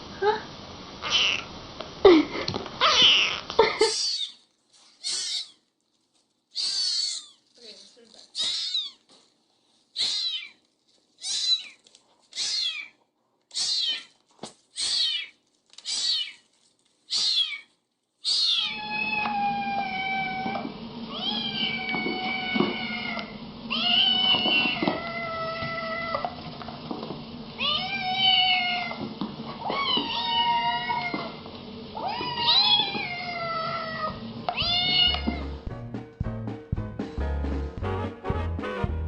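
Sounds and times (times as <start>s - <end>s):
cats meowing: 1.0s - 1.5s, 2.8s - 5.7s, 6.5s - 7.6s, 8.3s - 9.1s, 10.0s - 10.6s, 11.2s - 16.5s, 17.1s - 26.4s, 27.6s - 35.6s.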